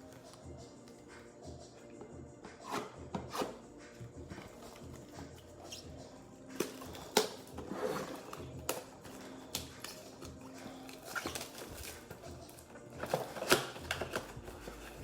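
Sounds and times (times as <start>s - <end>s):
plastic wrap and cardboard crinkling: 6.6s - 15.0s.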